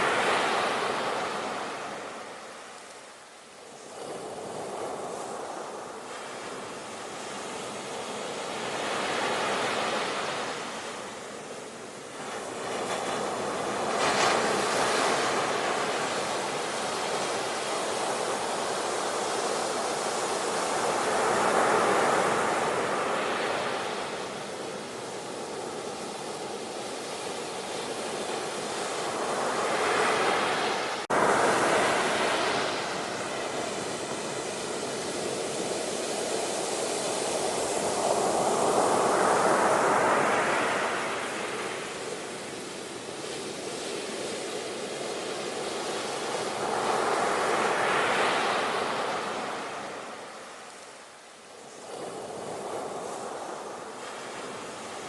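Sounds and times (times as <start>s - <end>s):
ocean waves washing on shore: 0.0s - 55.0s.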